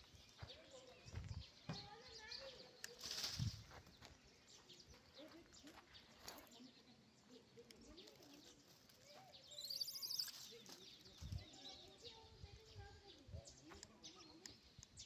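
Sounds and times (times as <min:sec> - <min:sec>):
bird twittering trill: 0:07.8 - 0:15.0.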